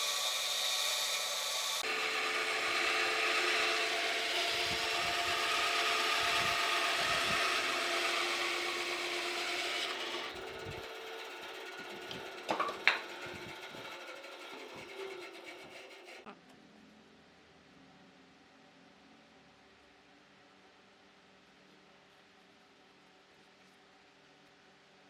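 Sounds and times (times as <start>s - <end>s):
power tool running on wood: 0.0s - 16.2s.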